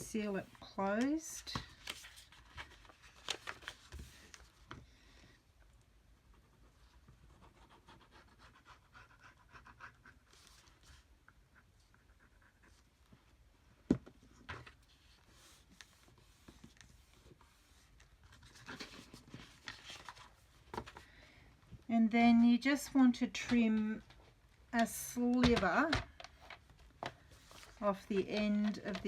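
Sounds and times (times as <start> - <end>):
paper envelopes rustling: 0.9 - 4.8, 14.5 - 21.2, 25.5 - 29.0.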